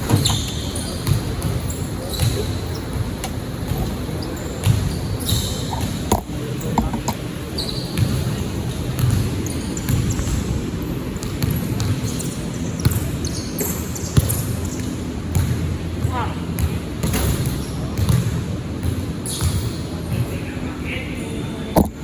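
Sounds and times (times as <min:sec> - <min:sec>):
shoe squeaks: 0:00.0 - 0:10.5, 0:11.4 - 0:15.0, 0:19.2 - 0:19.9
crowd hubbub: 0:00.0 - 0:14.8
basketball bouncing on court: 0:00.0 - 0:20.3.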